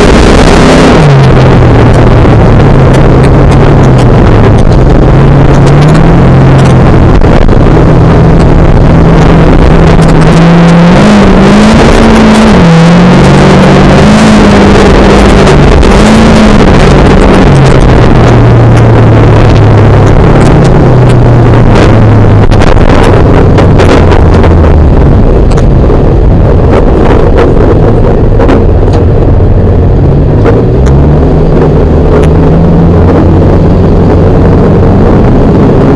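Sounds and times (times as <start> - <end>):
car engine from inside cabin: 0.0 - 35.9
sharp clicks and rattles: 0.0 - 35.9.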